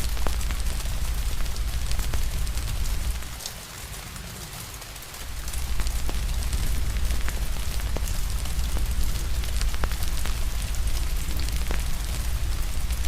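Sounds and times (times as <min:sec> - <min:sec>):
wood fire crackling: 0:00.0 - 0:03.6, 0:05.2 - 0:13.0
rain hiss: 0:00.0 - 0:13.0
low rumble: 0:05.3 - 0:13.0.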